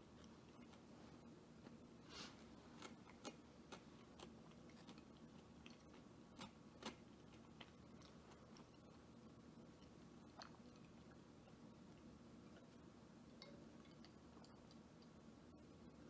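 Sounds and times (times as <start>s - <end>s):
person chewing fried food: 0.0s - 12.8s.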